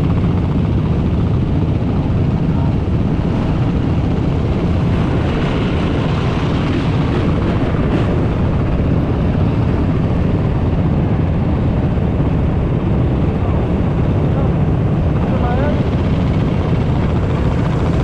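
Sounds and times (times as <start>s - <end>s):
dirt bike and atv engines rumbling: 0.0s - 18.0s.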